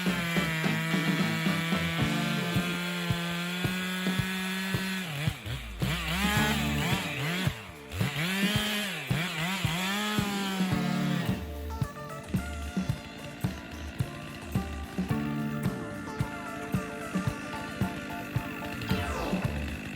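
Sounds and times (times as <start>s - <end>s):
chainsaw running: 0.0s - 19.9s.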